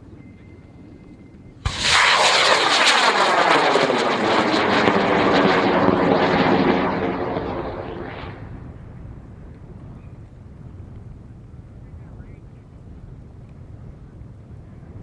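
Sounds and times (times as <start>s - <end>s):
rocket ignition crack: 1.6s - 8.9s
rocket motor burning: 1.7s - 8.8s.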